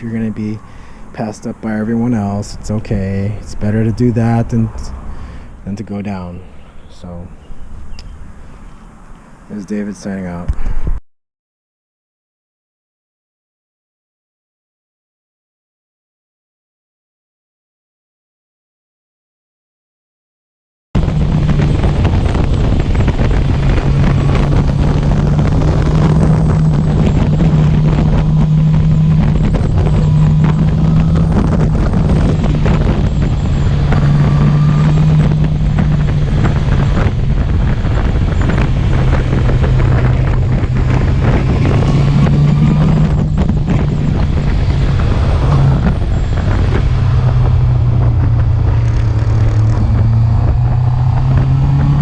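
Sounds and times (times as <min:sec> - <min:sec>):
motorcycle engine running: 0:21.0 - 0:52.0
wind on microphone: 0:21.0 - 0:52.0.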